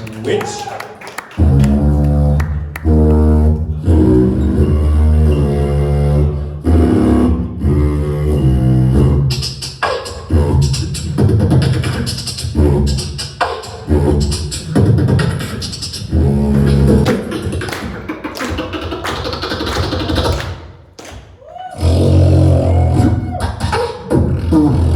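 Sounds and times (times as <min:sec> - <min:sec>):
beatbox vocal bass: 0:00.0 - 0:24.9
beatbox mouth snares and hi-hats: 0:08.7 - 0:20.6, 0:21.8 - 0:24.9.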